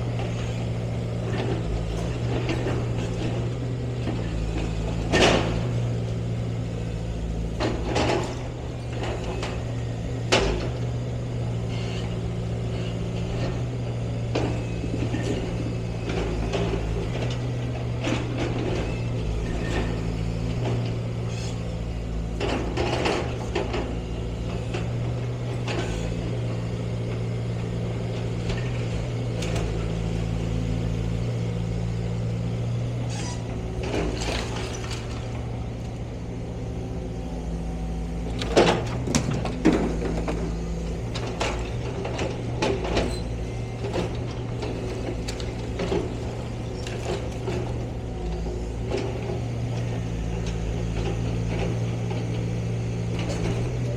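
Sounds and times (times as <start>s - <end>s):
heavy machinery engine running: 0.0s - 53.9s
metallic clanks and knocks: 38.3s - 43.1s.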